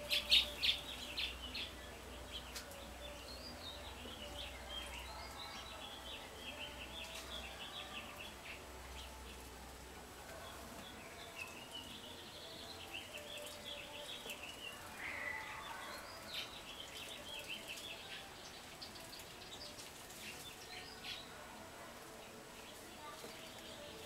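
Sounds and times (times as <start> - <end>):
songbird warbling: 0.0 - 1.8.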